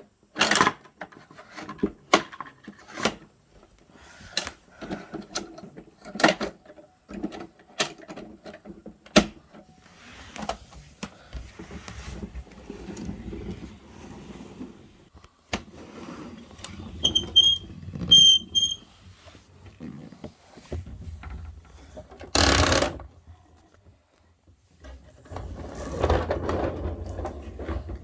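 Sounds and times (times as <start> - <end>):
plastic toy parts clicking and knocking: 0.3 - 3.3, 4.3 - 9.5, 22.0 - 23.1.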